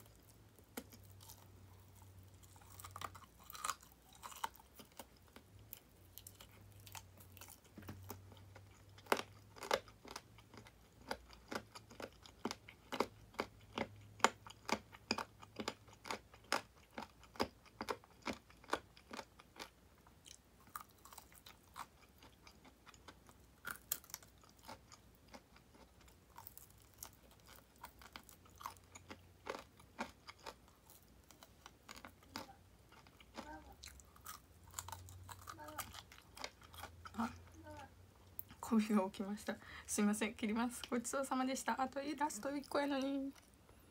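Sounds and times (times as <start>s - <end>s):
chewing and crunching fried chicken: 0.0s - 39.8s.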